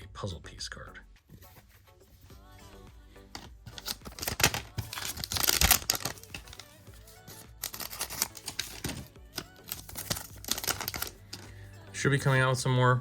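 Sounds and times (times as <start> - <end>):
faint background music: 0.0 - 13.0
wrapper tearing and crinkling: 3.7 - 11.5.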